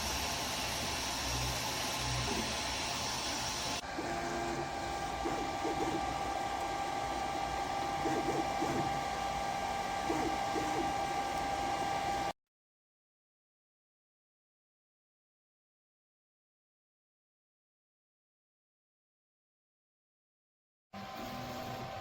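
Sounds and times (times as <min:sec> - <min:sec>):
stepper motor moves: 0:00.0 - 0:12.3
printer fan tone: 0:00.0 - 0:12.4, 0:21.0 - 0:22.0.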